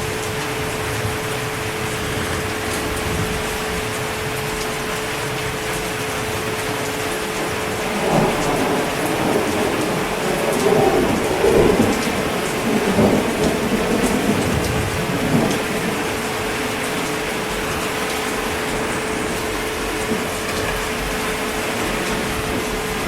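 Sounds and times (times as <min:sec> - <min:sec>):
heavy rain: 0:00.0 - 0:23.0
thunder rumble: 0:00.0 - 0:23.0.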